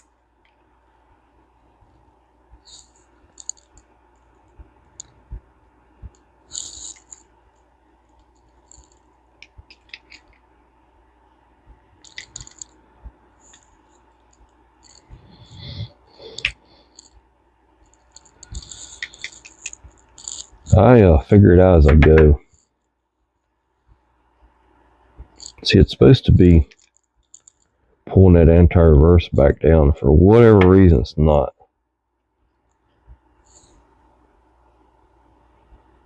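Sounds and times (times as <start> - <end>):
fishing reel clicks and clinks: 2.7 - 3.8, 12.0 - 12.7, 17.9 - 20.5, 25.4 - 25.6.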